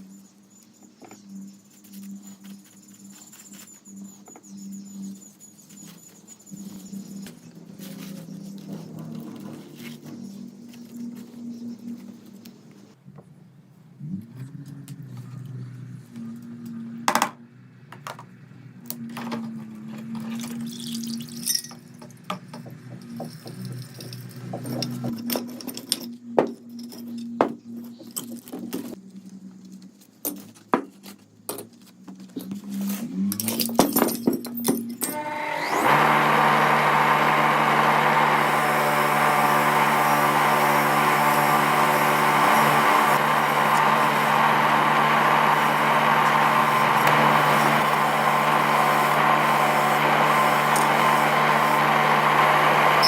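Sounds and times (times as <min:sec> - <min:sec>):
small metal parts clinking: 0:20.2 - 0:22.0
electric power tool motor grinding: 0:35.0 - 0:53.0.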